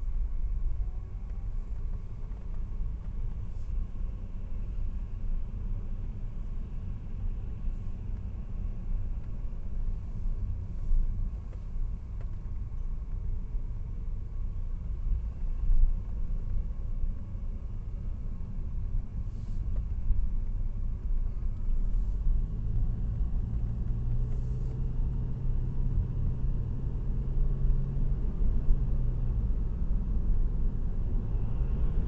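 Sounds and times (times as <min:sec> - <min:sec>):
car engine and road rumble: 0:00.0 - 0:32.0.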